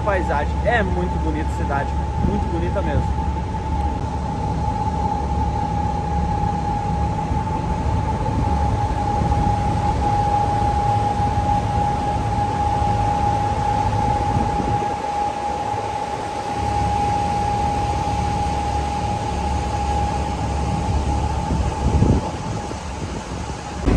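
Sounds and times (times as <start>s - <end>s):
low engine rumble: 0.0s - 10.6s
rushing wind: 0.0s - 13.0s, 21.3s - 23.9s
steady high whine: 0.0s - 21.6s.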